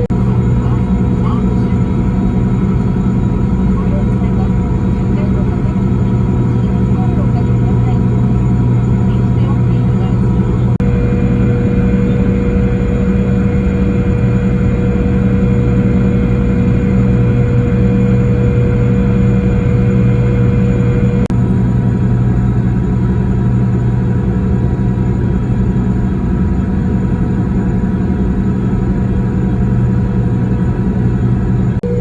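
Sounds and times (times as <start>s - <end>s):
engine drone: 0.0s - 32.0s.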